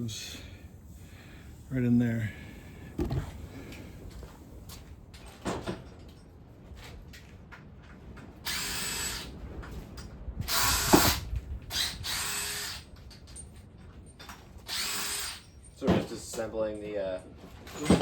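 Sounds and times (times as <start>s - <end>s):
power tool bursts: 14.7s - 15.4s.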